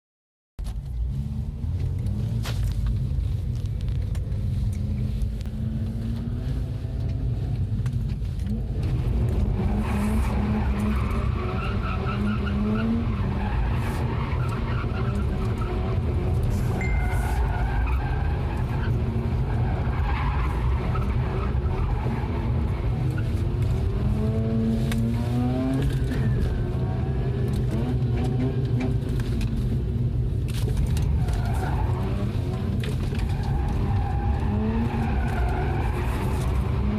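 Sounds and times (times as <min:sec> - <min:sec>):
constant low rumble: 0:00.6 - 0:11.4, 0:13.1 - 0:36.9
tyres skidding and squealing: 0:08.5 - 0:36.9.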